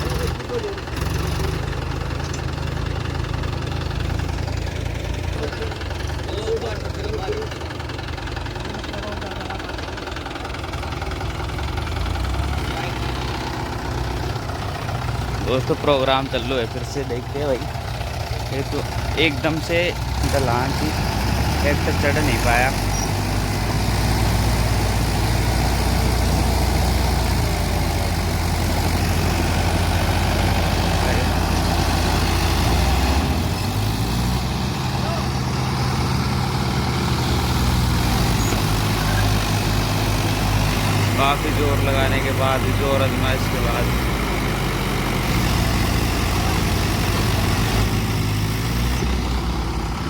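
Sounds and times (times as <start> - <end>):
diesel tractor engine under load: 0.0 - 50.0.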